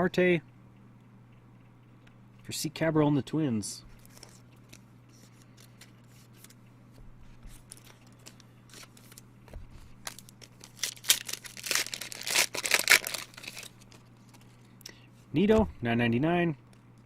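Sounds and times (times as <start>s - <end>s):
low electrical hum: 0.0s - 17.0s
wrapper tearing and crinkling: 7.6s - 9.2s, 10.0s - 14.4s.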